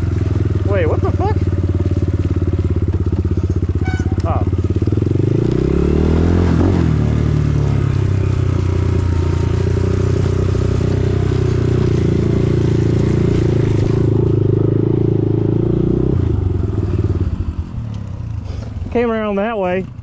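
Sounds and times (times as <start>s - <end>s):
dirt bike engine running: 0.0s - 20.0s.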